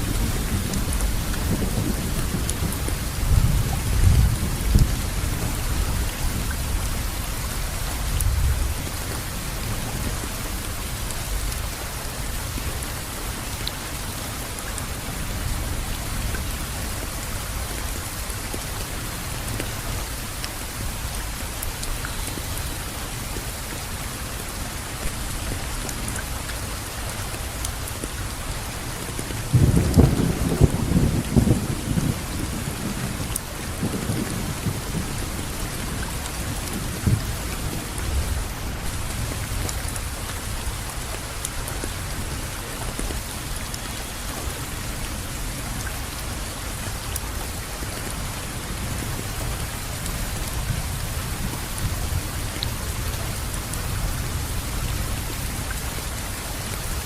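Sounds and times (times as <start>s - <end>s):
thunder rumbling: 0.0s - 6.8s, 29.4s - 39.6s
steady rainfall: 0.0s - 57.0s.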